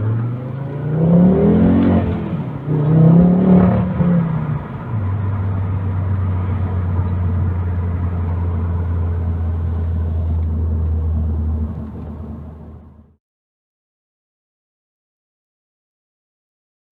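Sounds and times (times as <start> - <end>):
car engine droning: 0.0 - 13.2
road rumble: 0.0 - 13.2.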